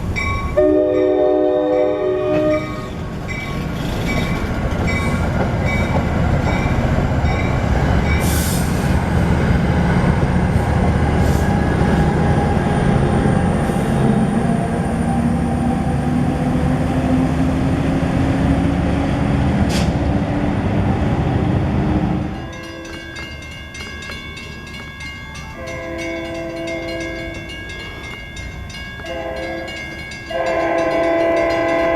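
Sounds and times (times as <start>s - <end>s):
crossing bell ringing: 0.0s - 8.3s, 22.3s - 31.9s
train rumbling on rails: 0.0s - 31.9s.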